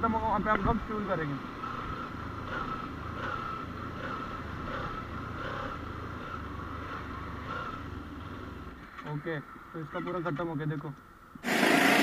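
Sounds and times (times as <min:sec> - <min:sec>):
motorcycle engine stuttering: 0:01.5 - 0:08.4.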